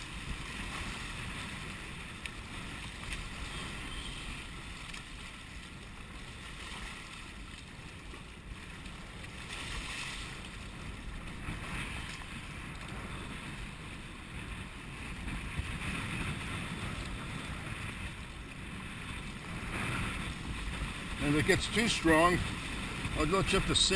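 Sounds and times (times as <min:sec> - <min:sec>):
water splashing against hull: 0:00.0 - 0:23.9
wind buffeting microphone: 0:00.0 - 0:23.9.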